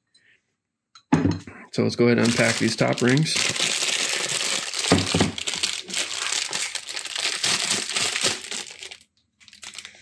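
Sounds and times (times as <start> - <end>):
plastic bags crinkling: 2.1 - 10.0.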